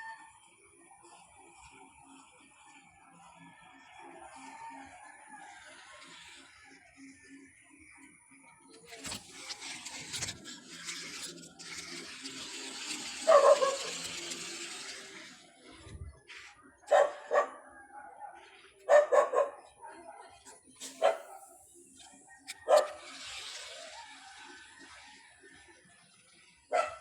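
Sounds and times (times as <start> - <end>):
dog barking: 16.9 - 20.4, 21.0 - 21.4, 22.7 - 23.0, 26.7 - 27.0.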